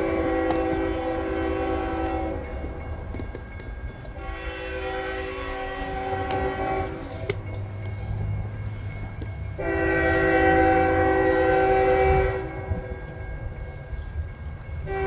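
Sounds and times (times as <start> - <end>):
diesel locomotive horn blast: 0.0 - 2.7, 4.1 - 8.2, 9.5 - 13.2
freight train rumble: 0.0 - 15.0.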